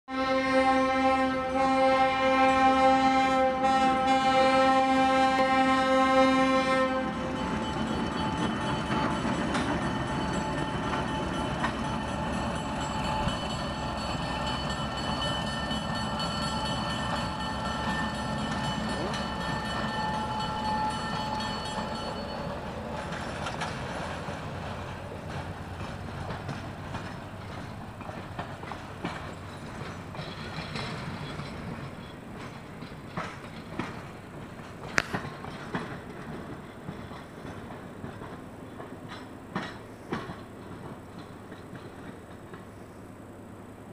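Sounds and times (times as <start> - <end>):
train horn blast: 0.1 - 7.5
train wheels rumbling on rails: 0.1 - 43.9.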